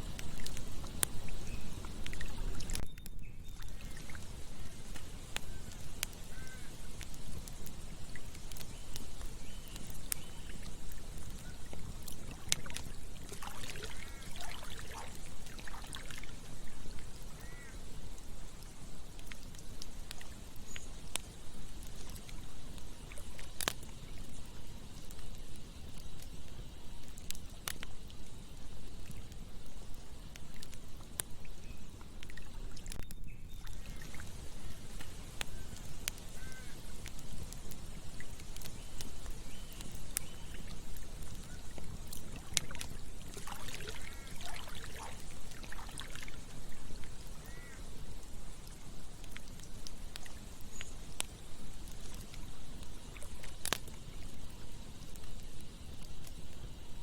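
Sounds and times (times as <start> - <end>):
campfire crackling: 0.0 - 57.0
short bird calls: 5.4 - 6.8, 13.6 - 15.1, 17.3 - 17.8, 34.6 - 36.8, 47.4 - 47.9
stream flowing: 9.8 - 17.9, 40.6 - 49.6.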